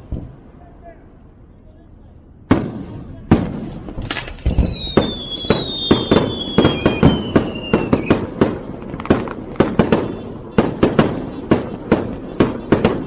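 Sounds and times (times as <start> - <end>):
fireworks bangs: 2.5 - 13.0
falling firework whistle: 4.0 - 8.2.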